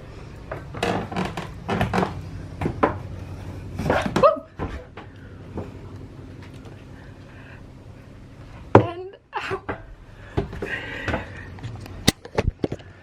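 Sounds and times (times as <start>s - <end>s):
knocks and clunks: 0.4s - 3.1s.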